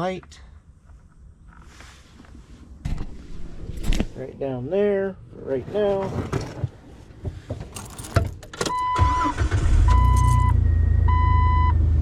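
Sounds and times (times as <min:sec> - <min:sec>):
car engine starting and idling: 0:07.6 - 0:12.0
dashboard warning chime beeping: 0:08.6 - 0:11.8.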